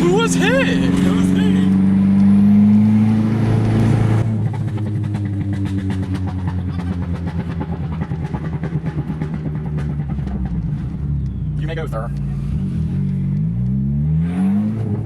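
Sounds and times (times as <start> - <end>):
car engine pulsing unevenly: 0.0 - 13.6.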